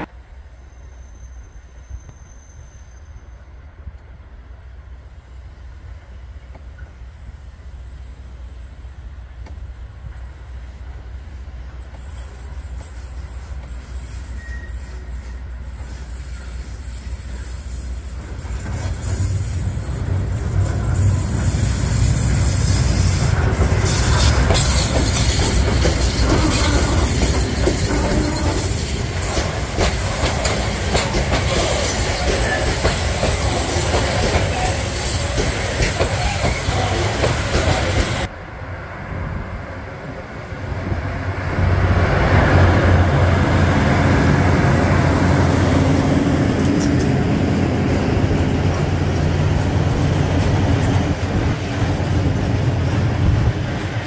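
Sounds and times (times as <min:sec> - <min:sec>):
diesel locomotive passing: 0:00.0 - 0:54.0
freight wagon wheels clacking: 0:23.4 - 0:38.3.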